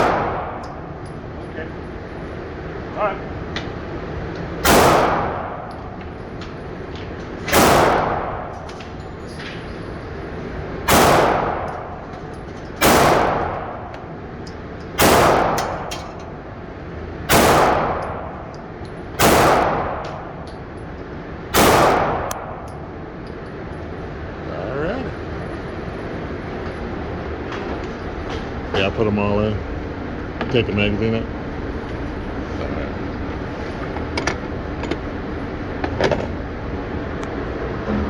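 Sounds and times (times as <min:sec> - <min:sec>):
pistol shots echoing: 0:00.0 - 0:00.9, 0:04.6 - 0:05.7, 0:07.5 - 0:08.5, 0:10.8 - 0:11.9, 0:12.8 - 0:13.9, 0:15.0 - 0:16.0, 0:17.3 - 0:18.3, 0:19.2 - 0:20.4, 0:21.5 - 0:22.6.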